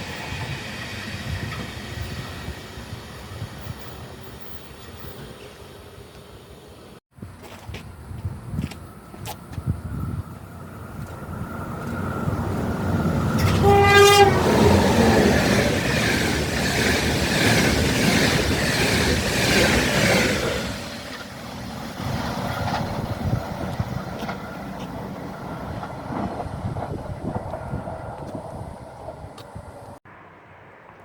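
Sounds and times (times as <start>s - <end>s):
train passing: 0.0s - 7.0s, 8.8s - 31.0s
train horn blast: 13.3s - 15.6s.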